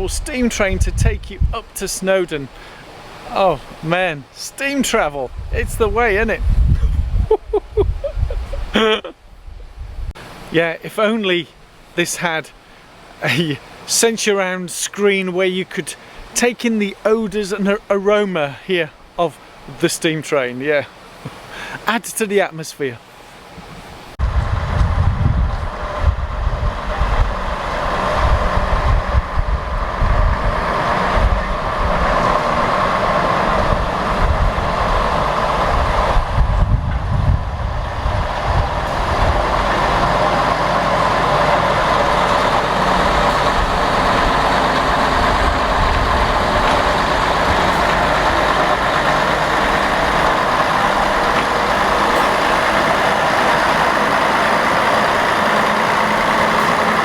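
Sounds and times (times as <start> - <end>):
low rumbles: 0.0 - 10.2, 24.1 - 57.0.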